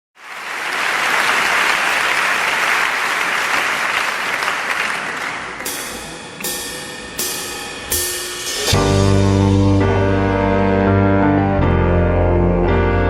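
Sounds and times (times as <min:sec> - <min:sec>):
audience applauding and cheering: 0:00.2 - 0:06.6.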